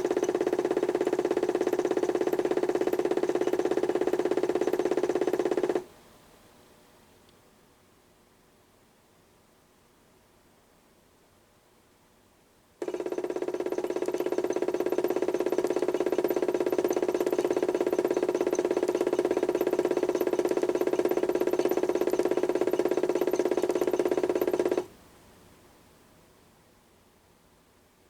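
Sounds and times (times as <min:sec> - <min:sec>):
electric motor humming: 0:00.0 - 0:05.8, 0:12.8 - 0:24.9.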